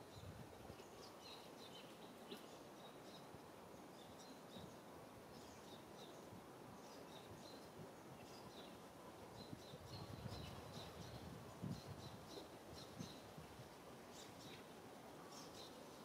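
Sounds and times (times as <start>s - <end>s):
small birds chirping: 0.0s - 16.0s
steady low hiss: 0.0s - 16.0s.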